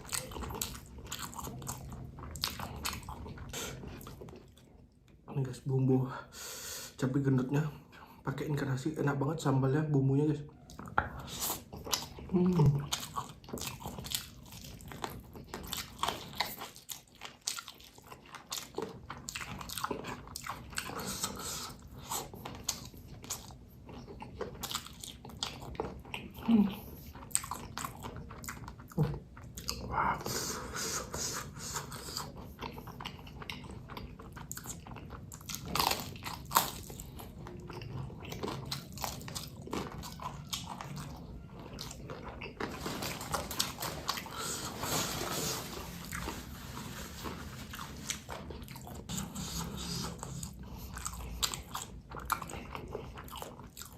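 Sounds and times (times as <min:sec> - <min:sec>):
person chewing food: 0:00.0 - 0:05.3, 0:10.5 - 0:53.9.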